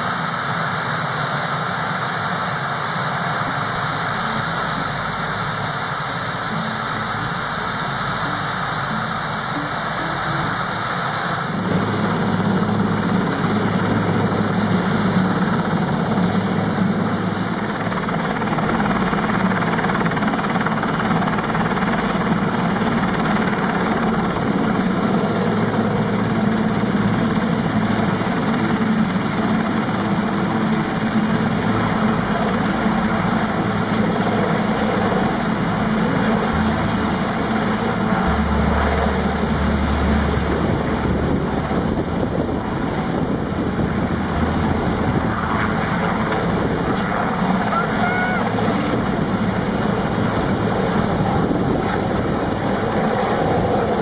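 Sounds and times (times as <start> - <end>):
helicopter rotor and engine: 0.0 - 54.0
high turbine whine: 0.0 - 54.0.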